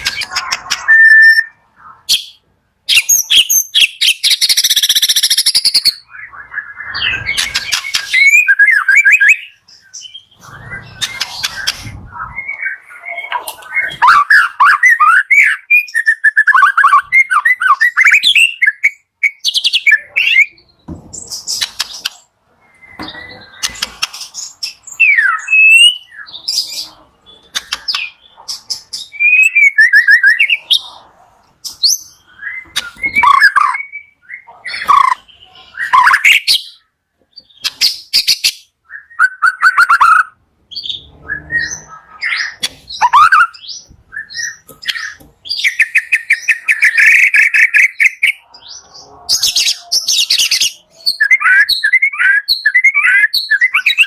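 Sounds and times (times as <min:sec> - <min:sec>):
songbird singing varied song: 0:31.7 - 0:54.0.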